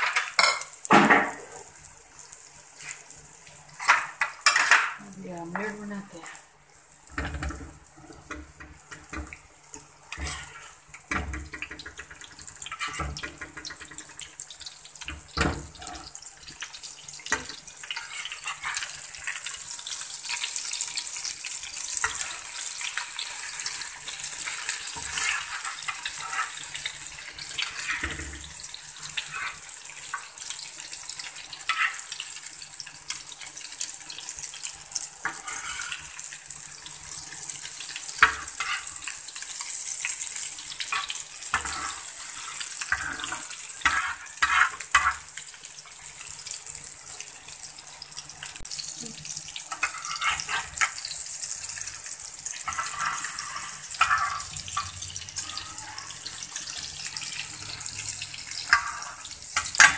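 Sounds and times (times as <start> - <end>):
omelette sizzling in frying pan: 0.0 - 59.9
metal spatula scraping pan: 10.1 - 10.8, 12.2 - 14.2, 17.3 - 19.4, 23.4 - 28.4, 29.1 - 29.7, 31.6 - 32.2, 35.2 - 36.3, 37.9 - 39.2, 40.8 - 45.2, 49.6 - 51.1, 52.5 - 59.9.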